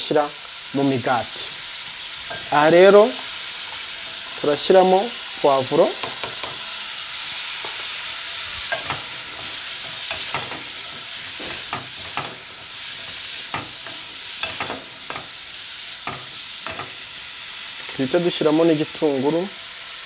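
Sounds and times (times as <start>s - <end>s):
food sizzling in a metal pot: 0.0s - 20.0s
wooden spoon scraping and knocking pot: 6.0s - 6.7s, 8.6s - 15.3s.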